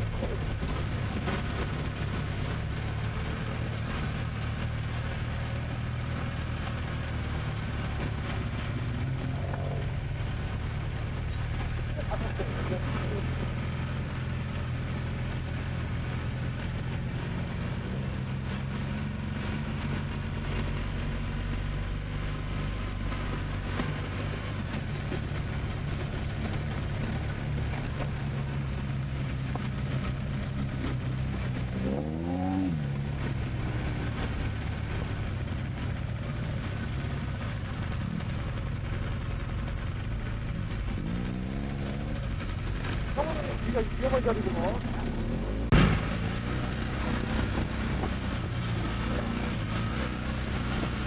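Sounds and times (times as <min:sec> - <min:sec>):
engine revving: 0:00.0 - 0:51.0
engine running: 0:00.0 - 0:51.0.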